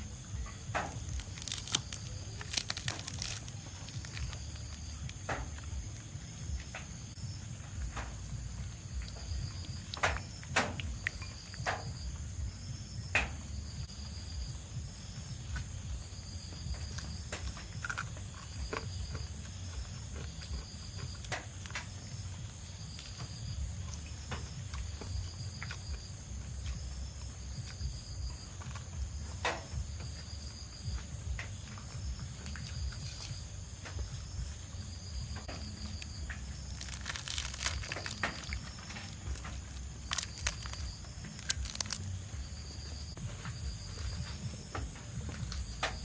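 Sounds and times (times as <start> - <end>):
insects chirping: 0.0 - 46.0
sharp clicks and knocks: 9.2 - 12.0.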